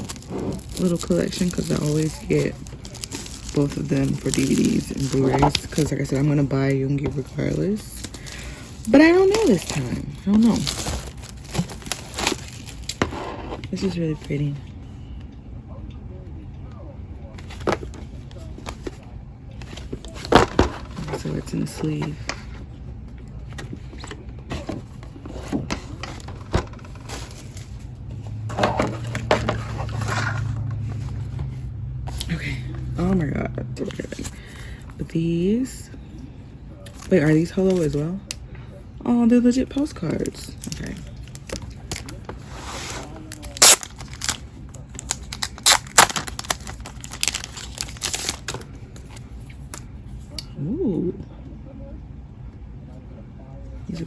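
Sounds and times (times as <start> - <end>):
packaging rustling and sliding: 0.0 - 6.4, 7.1 - 13.8, 23.6 - 32.3, 40.6 - 49.8
packaging clicks and knocks: 28.5 - 30.8, 45.0 - 48.7.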